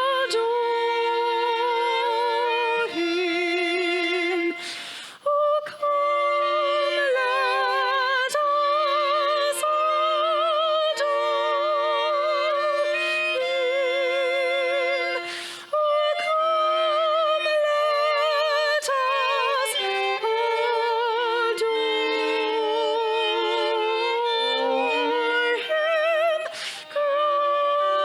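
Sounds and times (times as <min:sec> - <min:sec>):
breath between phrases: 0:04.6 - 0:05.2, 0:15.3 - 0:15.7, 0:26.5 - 0:27.0.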